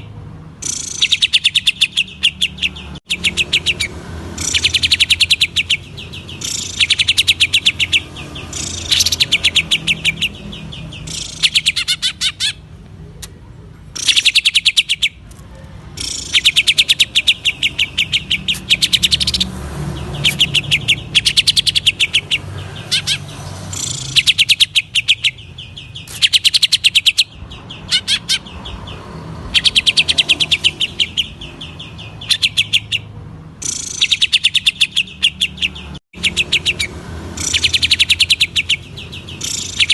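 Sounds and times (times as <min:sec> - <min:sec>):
bird singing fast high notes: 0:00.6 - 0:12.6, 0:16.0 - 0:28.6.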